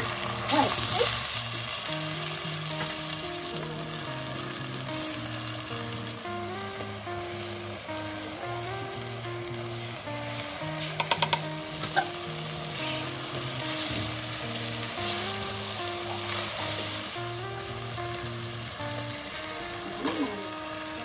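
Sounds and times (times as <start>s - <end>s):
food sizzling in hot oil: 0.0s - 21.0s
soft background music: 0.0s - 21.0s
knocks against pot: 11.0s - 11.5s.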